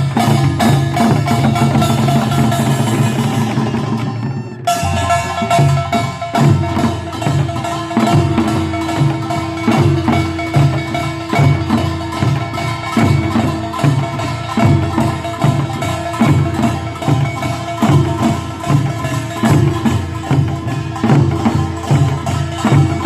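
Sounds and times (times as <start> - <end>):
held note: 0.0 - 14.4
clanging gongs: 0.0 - 23.0
drums: 0.0 - 23.0.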